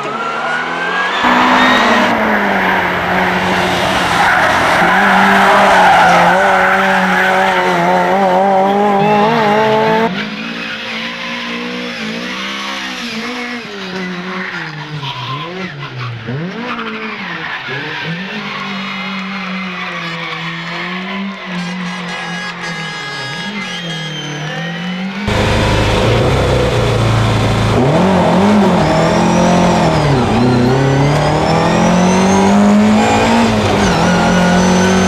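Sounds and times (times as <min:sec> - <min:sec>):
car engine rising and falling: 0:00.0 - 0:10.5, 0:25.3 - 0:35.0
race car engine running hard: 0:25.3 - 0:35.0.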